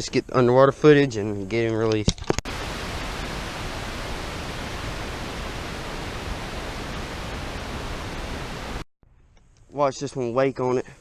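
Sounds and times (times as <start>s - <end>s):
underwater microphone hiss: 2.5s - 8.8s.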